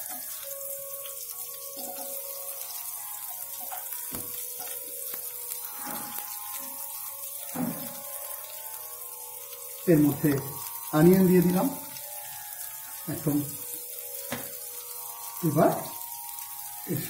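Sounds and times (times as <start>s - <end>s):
onion and garlic sizzling in oil: 0.0s - 17.0s.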